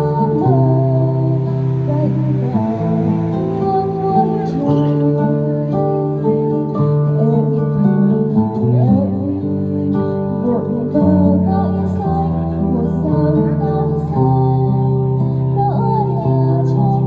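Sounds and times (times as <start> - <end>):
held instrumental chords: 0.0 - 7.0
woman singing: 0.0 - 17.0.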